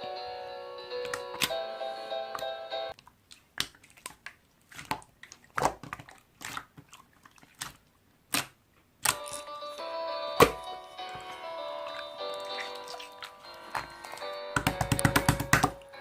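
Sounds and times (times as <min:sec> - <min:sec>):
background music: 0:00.0 - 0:03.0, 0:09.1 - 0:16.0.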